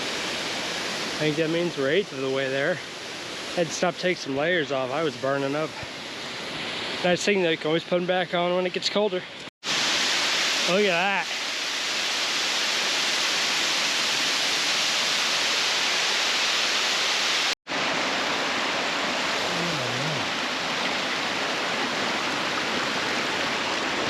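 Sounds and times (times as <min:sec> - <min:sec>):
waterfall rushing: 0:09.7 - 0:24.0.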